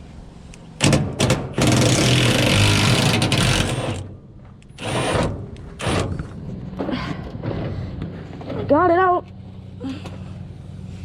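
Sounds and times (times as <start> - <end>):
sharp metal knocks: 0.8 - 3.7
tool whirring and rattling: 0.8 - 8.6.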